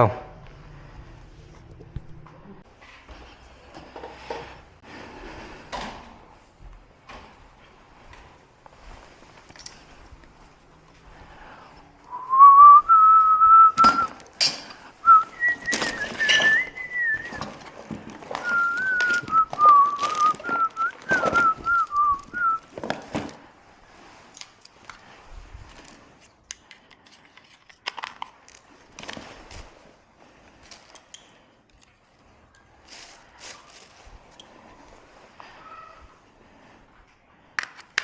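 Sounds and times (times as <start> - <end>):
person whistling a tune: 12.1 - 14.2, 15.0 - 17.5, 18.4 - 22.6
handling clicks and knocks: 13.8 - 23.4.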